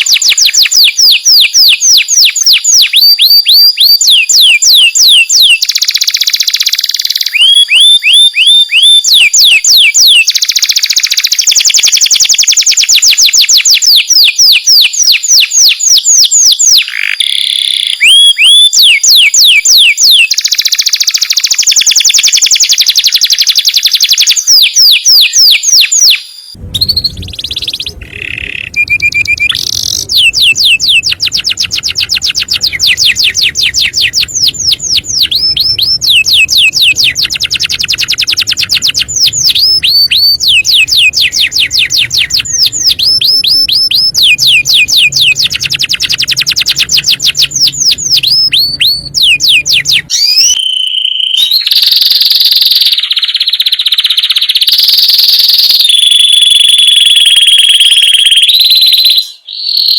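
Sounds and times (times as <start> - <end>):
canary singing trills: 16.7 - 54.8.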